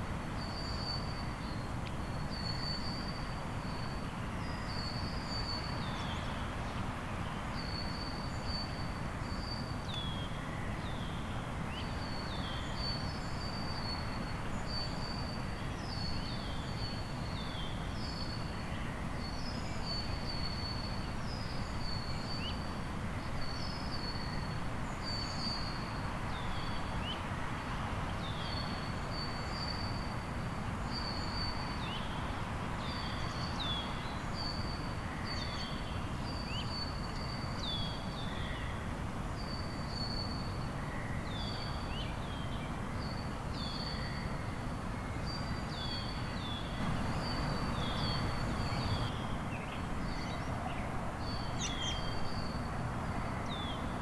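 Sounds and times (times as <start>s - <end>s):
birds calling: 45.8s - 52.6s.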